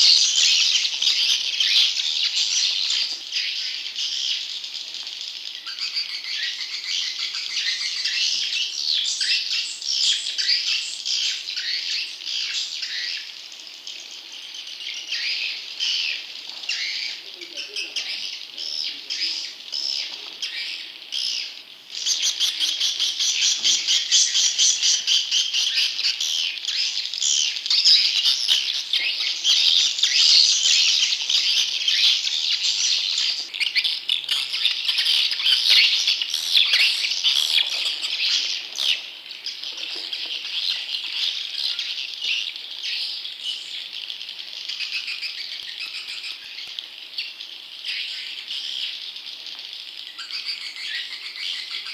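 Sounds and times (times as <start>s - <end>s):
bird chicks twittering: 0.0s - 51.9s.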